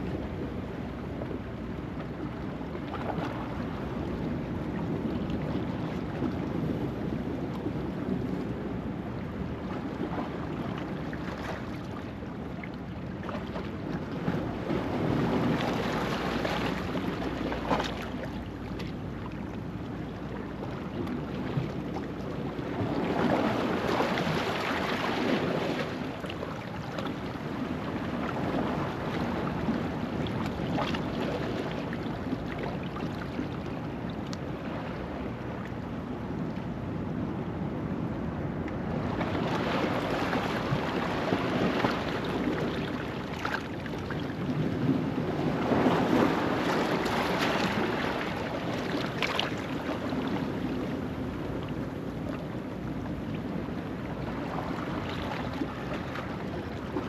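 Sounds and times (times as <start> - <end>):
ocean waves washing over rocks: 38.5 - 53.0.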